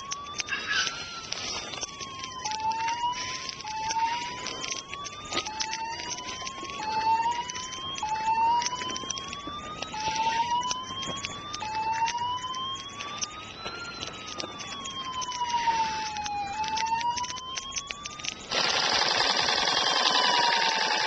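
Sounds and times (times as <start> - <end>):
fire truck siren wailing: 0.0 - 21.0
sharp clicks and crackles: 0.0 - 21.0.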